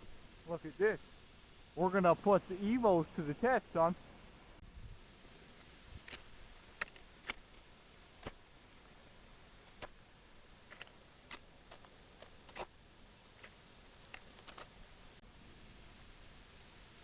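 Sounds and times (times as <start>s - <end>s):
snowshoe steps on icy snow: 10.6s - 15.0s.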